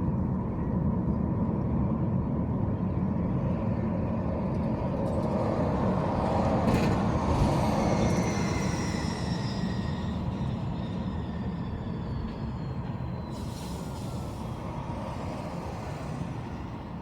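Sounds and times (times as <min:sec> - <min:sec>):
faint high squeal: 0:07.5 - 0:14.6.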